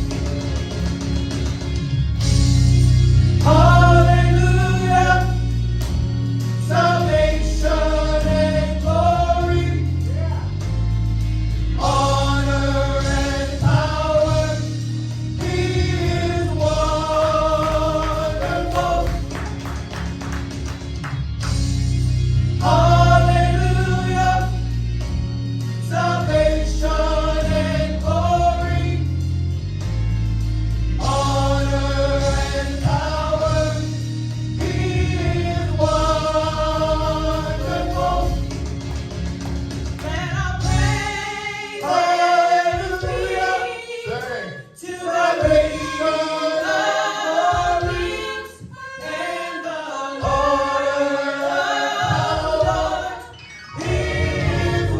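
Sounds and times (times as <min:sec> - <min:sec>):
band with heavy bass: 0:00.0 - 0:41.9, 0:53.8 - 0:54.9
gospel choir singing: 0:00.0 - 0:54.9.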